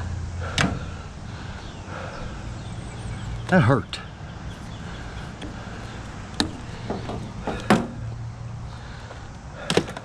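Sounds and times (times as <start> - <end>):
low steady hum: 0.0 - 10.0
knocks of scrap being loaded: 6.4 - 8.0, 9.6 - 10.0.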